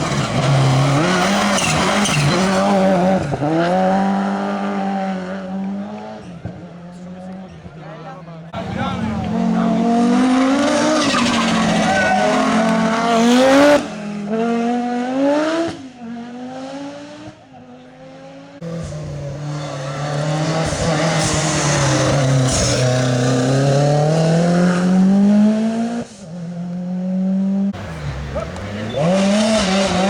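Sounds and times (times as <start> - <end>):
rally car engines revving: 0.0 - 30.0.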